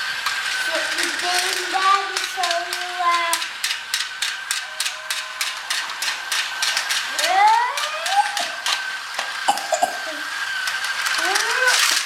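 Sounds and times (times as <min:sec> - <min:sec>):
toy train motor whine: 0:00.0 - 0:12.0
rapid gear clicking: 0:00.2 - 0:08.8
child vocalizing: 0:07.2 - 0:08.7, 0:09.5 - 0:10.3, 0:11.2 - 0:11.8.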